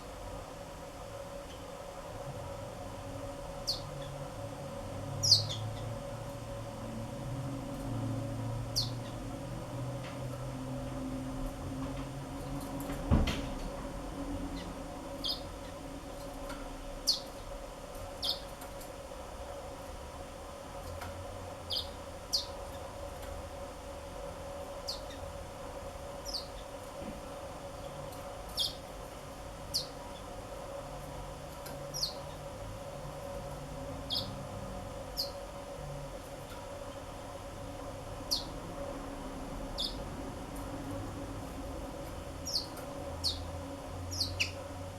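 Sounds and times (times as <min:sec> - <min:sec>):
steady hum: 0:00.0 - 0:44.9
bird high chirps: 0:05.2 - 0:05.6, 0:18.2 - 0:18.4, 0:34.1 - 0:34.3, 0:38.3 - 0:38.5, 0:42.5 - 0:43.5, 0:44.1 - 0:44.6.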